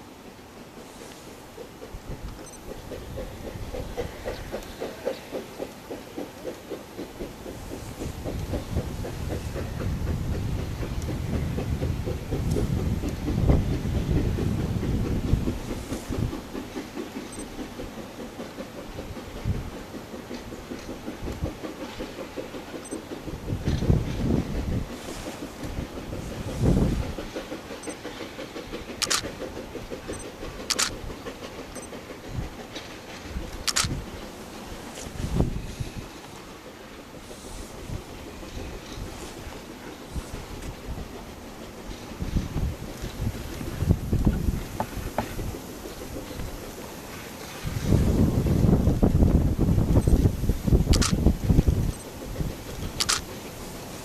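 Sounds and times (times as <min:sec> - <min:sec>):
steam locomotive chuffing: 0:00.0 - 0:54.0
train rumble: 0:00.0 - 0:54.0.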